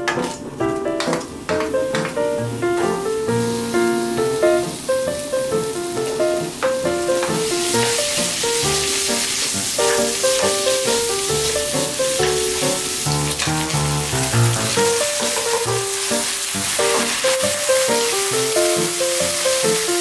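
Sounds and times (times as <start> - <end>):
bacon and onion sizzling in a pan: 1.0 - 20.0.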